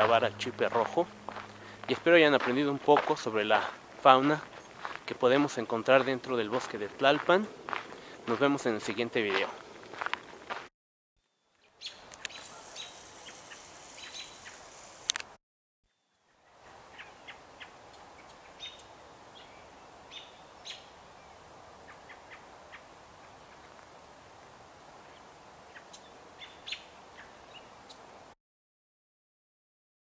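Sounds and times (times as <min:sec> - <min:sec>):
steady outdoor hiss: 0:00.0 - 0:10.6, 0:11.4 - 0:28.4
bird chirps and calls: 0:11.6 - 0:14.7, 0:16.3 - 0:20.9, 0:25.7 - 0:28.0.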